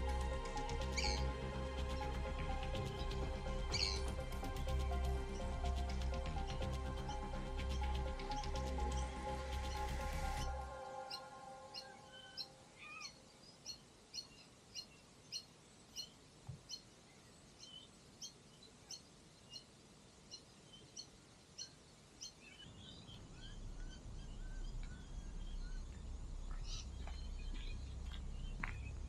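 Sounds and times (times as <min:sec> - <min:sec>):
low rumbling noise: 0:00.0 - 0:12.8, 0:22.7 - 0:29.0
bird chirping: 0:00.0 - 0:29.0.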